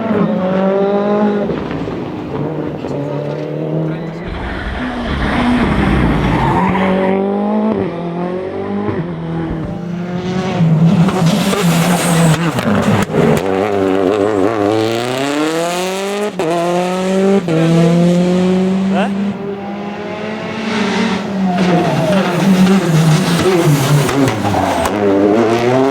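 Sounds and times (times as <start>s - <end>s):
rally car engine at full throttle: 0.0s - 25.9s.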